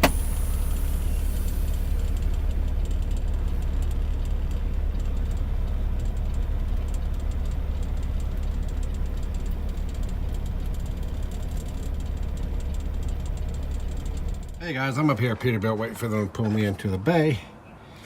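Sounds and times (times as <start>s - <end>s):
truck diesel engine rumbling: 0.0s - 17.5s.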